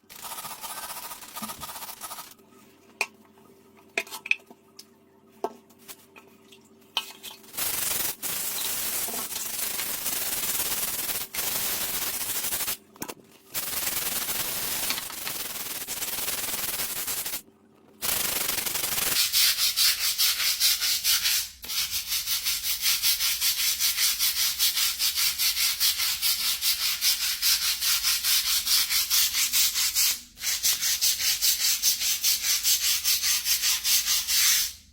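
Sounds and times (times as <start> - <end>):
scrubbing strokes: 0.1 - 2.3.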